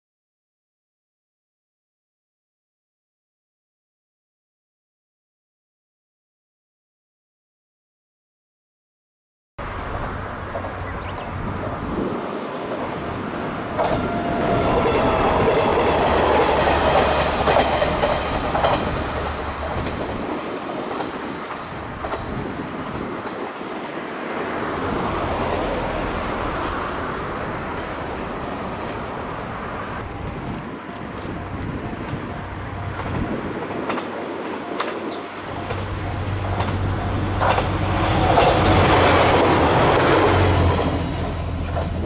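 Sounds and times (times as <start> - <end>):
diesel train passing: 9.6 - 42.0
wheels clacking over rail joints: 12.5 - 24.8, 25.4 - 42.0.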